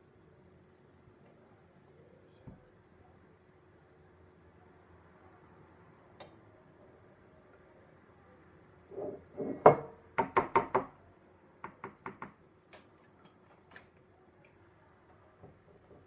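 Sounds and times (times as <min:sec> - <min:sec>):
hard knocks and taps: 0:11.6 - 0:12.4.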